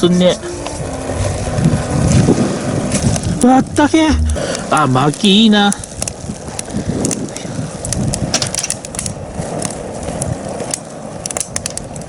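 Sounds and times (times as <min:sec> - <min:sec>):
wood fire crackling: 0:00.0 - 0:12.0
flames rushing: 0:00.7 - 0:12.0
sharp pops of fire: 0:02.9 - 0:12.0.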